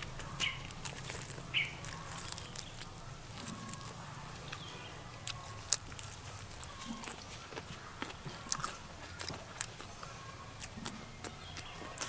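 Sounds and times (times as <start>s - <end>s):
chewing crunches: 0.0s - 12.0s
squeaky mouth sounds: 5.2s - 12.0s.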